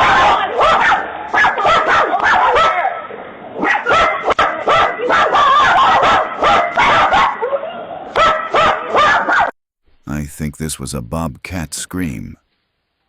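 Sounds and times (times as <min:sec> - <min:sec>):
dog barking and yipping: 0:00.0 - 0:09.5.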